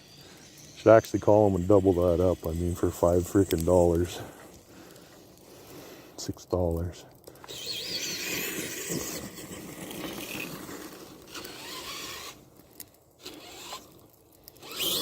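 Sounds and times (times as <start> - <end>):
electric motors whining: 7.4 - 12.4, 13.2 - 15.0.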